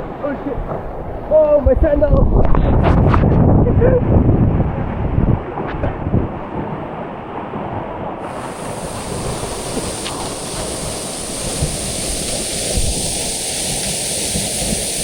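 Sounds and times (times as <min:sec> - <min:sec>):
wind on microphone: 0:00.0 - 0:15.0
waterfall rushing: 0:08.2 - 0:15.0.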